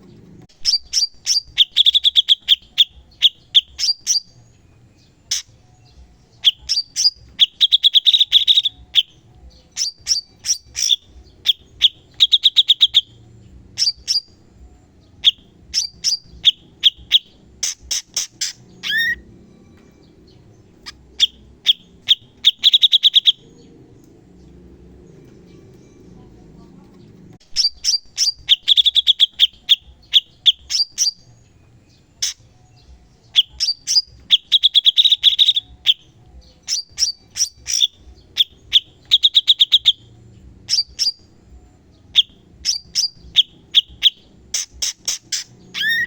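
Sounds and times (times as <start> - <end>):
bird chattering bursts: 9.8 - 13.1, 15.2 - 19.2, 27.6 - 31.2, 42.2 - 46.0.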